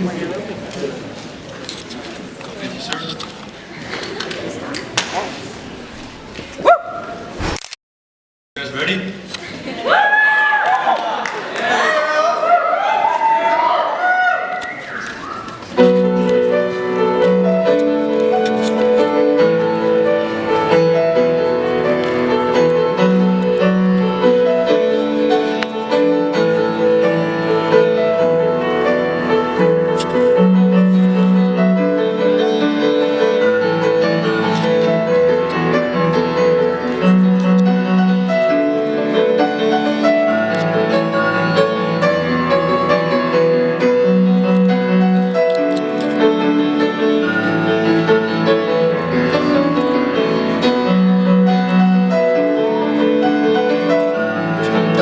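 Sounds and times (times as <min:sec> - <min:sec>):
solo piano chords: 0:15.7 - 0:55.0.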